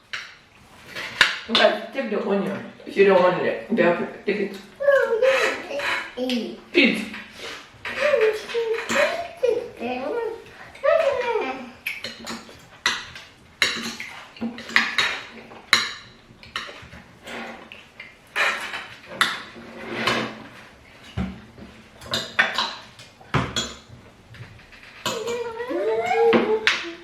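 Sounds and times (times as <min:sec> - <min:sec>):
cutlery clinking on plates: 0:07.0 - 0:09.4, 0:11.8 - 0:27.0.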